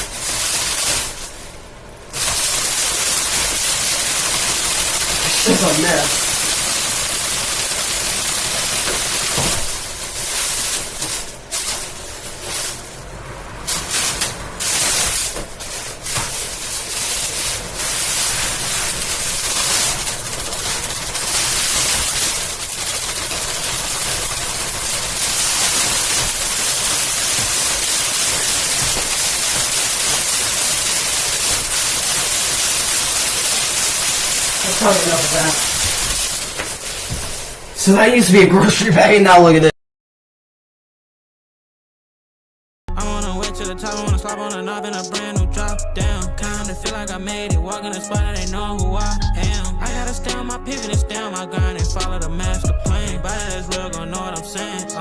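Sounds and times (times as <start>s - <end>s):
box fan rushing air: 0.0s - 38.3s
plastic bag fluttering in fan: 0.0s - 38.9s.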